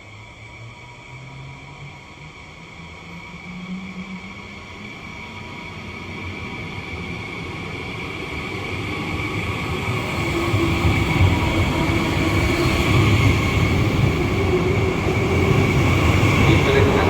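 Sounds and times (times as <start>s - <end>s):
train rumble: 9.8s - 17.0s.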